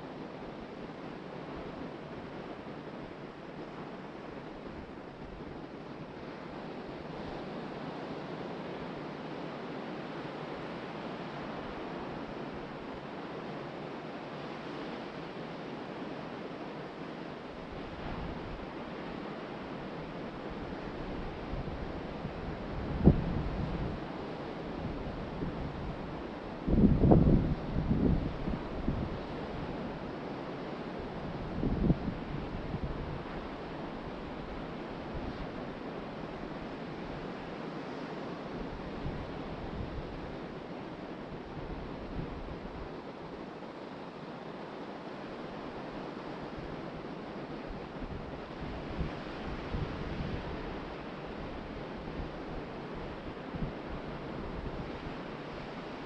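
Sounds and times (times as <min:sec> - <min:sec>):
ocean surf washing: 0:00.0 - 0:56.0
wind: 0:00.0 - 0:56.0
wind buffeting microphone: 0:24.8 - 0:29.3.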